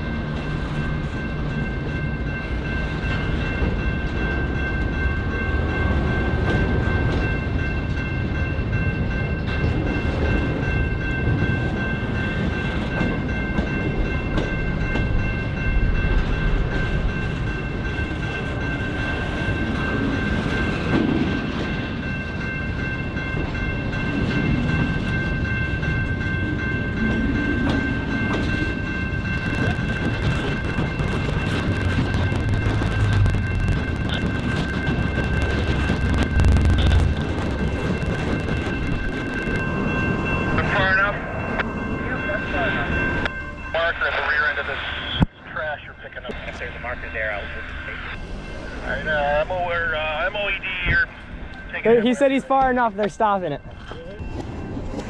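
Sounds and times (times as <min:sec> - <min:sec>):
diesel locomotive low rumble: 0:00.0 - 0:51.9
high-pitched whine: 0:29.4 - 0:39.7.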